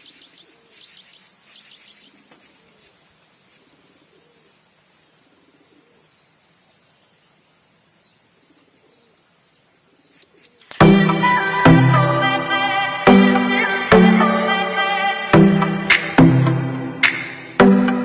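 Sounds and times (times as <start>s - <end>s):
bird chirps: 0.0s - 9.2s
insect trill: 0.0s - 11.6s, 12.7s - 15.8s.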